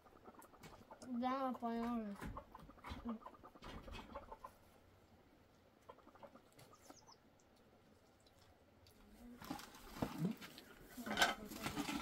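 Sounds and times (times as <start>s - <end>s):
faint high bird chirps: 6.6s - 7.3s.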